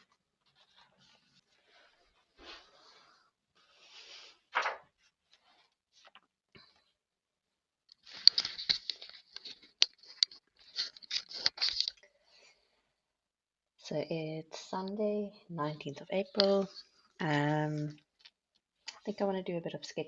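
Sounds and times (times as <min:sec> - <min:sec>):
crinkly material rustling: 0:00.0 - 0:03.8, 0:07.9 - 0:12.6.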